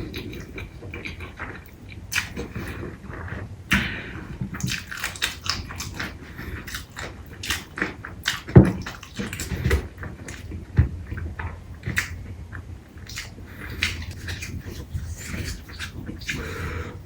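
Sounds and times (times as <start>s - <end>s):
person chewing food: 0.0s - 17.0s
wet mouth clicks and smacks: 2.1s - 2.6s, 4.6s - 10.5s, 11.9s - 12.2s, 13.0s - 16.8s.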